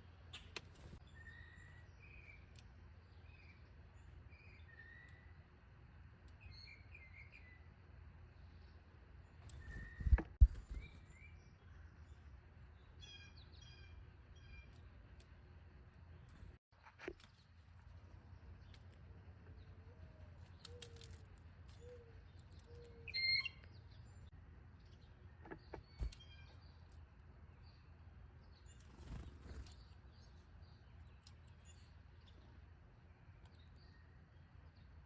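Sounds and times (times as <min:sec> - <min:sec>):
sharp bird chirp: 0:22.7 - 0:23.8.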